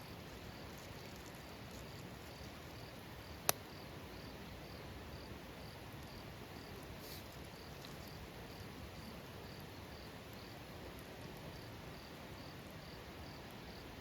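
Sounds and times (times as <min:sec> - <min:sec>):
insect chirping: 0:00.0 - 0:14.0
low background hiss: 0:00.0 - 0:14.0
sharp crack: 0:03.4 - 0:03.6.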